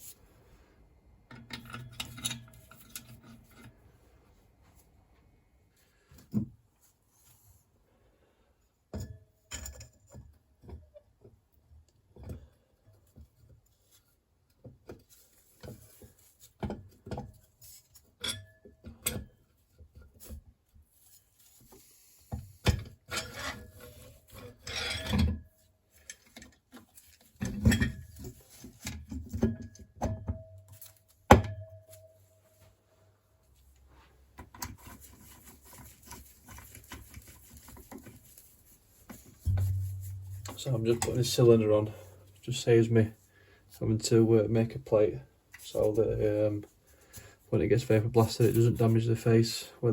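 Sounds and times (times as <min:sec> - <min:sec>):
rubbing on metal: 0:34.6 - 0:42.6.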